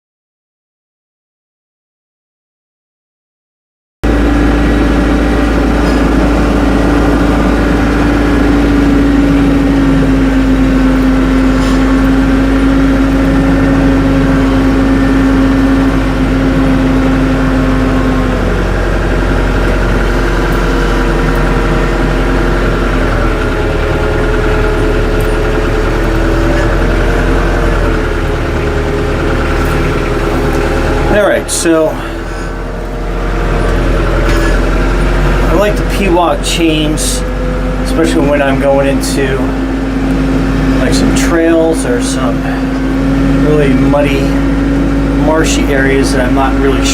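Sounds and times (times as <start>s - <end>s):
tractor engine running: 4.0s - 46.9s.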